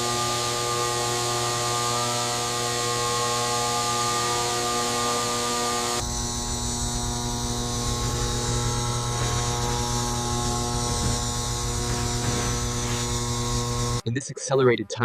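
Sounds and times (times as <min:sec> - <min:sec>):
electrical hum: 0:02.0 - 0:14.0.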